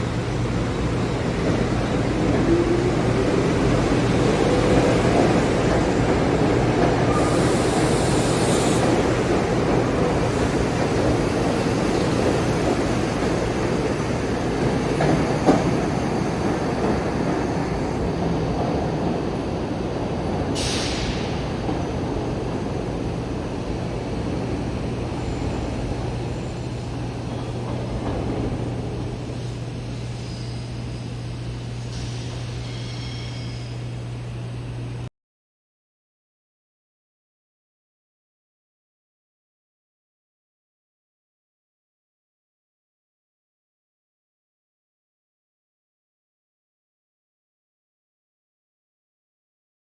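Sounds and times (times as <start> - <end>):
train electrical hum: 0.0 - 35.1.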